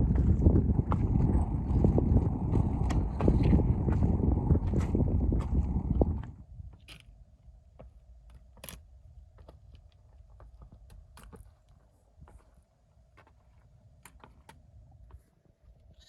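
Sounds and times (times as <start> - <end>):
wind buffeting microphone: 0.0 - 6.9
footsteps on stony path: 0.0 - 7.1, 9.3 - 14.5.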